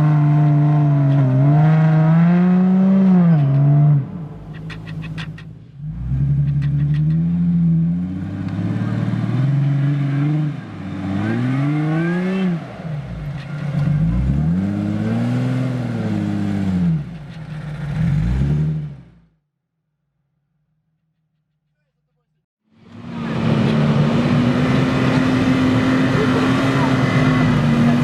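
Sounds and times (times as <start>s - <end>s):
car engine revving: 0.0s - 19.3s, 22.8s - 28.0s.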